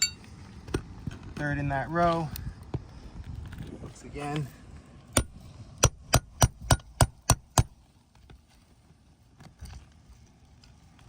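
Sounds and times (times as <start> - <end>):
hammer striking metal nail puller: 5.2 - 7.7.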